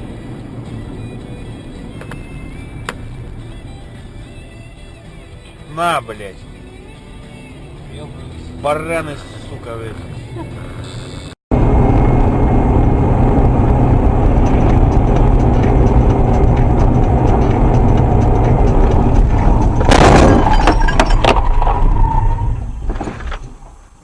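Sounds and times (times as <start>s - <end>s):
vehicle driving noise: 0.0s - 24.0s
vehicle collision crash: 19.2s - 23.9s.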